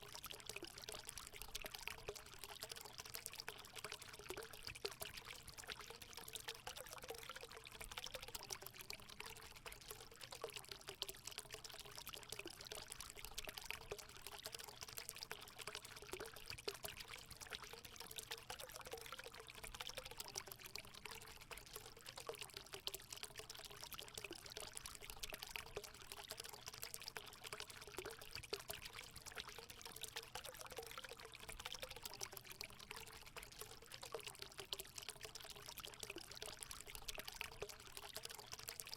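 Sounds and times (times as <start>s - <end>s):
water pouring and gurgling: 0.0s - 38.9s.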